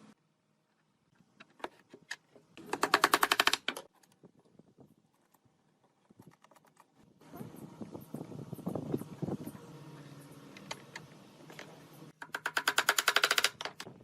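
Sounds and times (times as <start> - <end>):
rapid run of loud clicks: 12.3 - 13.9.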